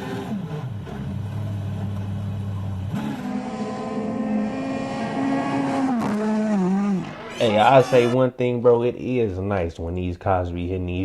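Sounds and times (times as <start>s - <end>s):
rally car engine revving: 0.0s - 8.2s.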